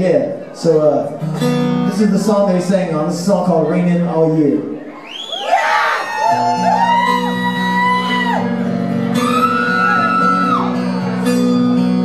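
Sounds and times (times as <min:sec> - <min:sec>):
acoustic guitar playing: 0:00.0 - 0:05.0, 0:06.3 - 0:12.0
audience whooping: 0:05.0 - 0:11.1.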